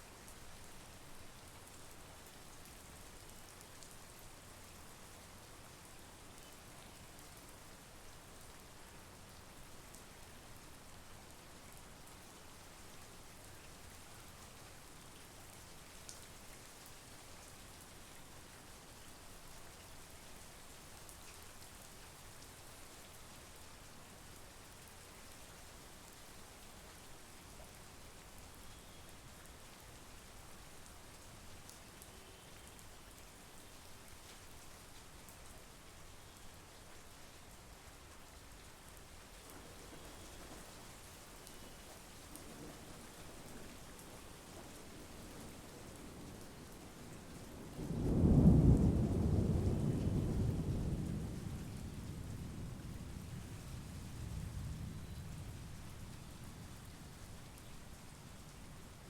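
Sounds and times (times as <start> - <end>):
rain hissing: 39.4 - 46.6.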